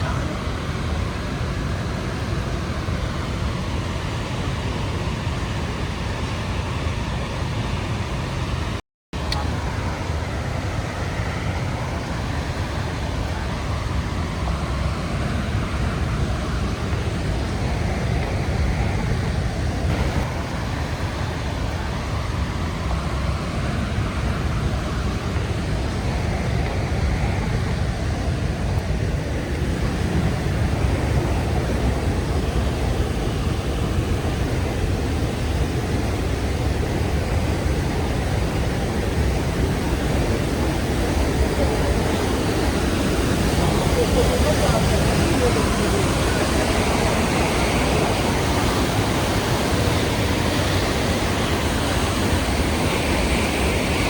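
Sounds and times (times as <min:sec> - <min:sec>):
waterfall rushing: 0:19.8 - 0:54.0.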